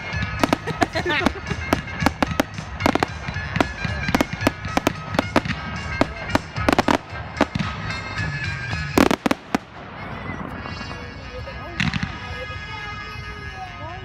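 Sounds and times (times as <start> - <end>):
fireworks bangs and crackles: 0.0 - 13.6
music playing: 0.0 - 14.0.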